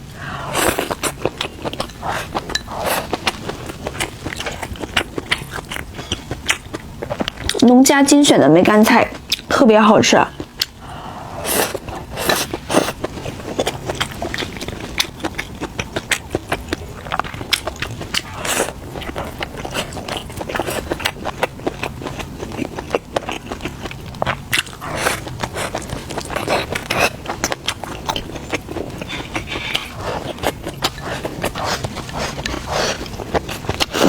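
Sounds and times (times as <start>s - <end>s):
person chewing and crunching: 0.3s - 7.7s, 9.1s - 9.5s, 10.3s - 34.0s.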